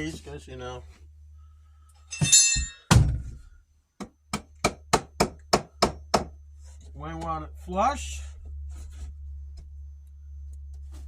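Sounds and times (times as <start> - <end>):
hammer knocking wood: 4.0 - 6.3.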